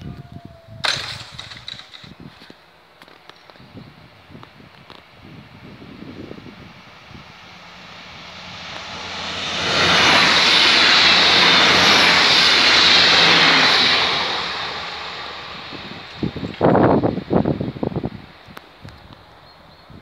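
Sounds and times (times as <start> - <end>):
train passing at speed: 5.1 - 19.7.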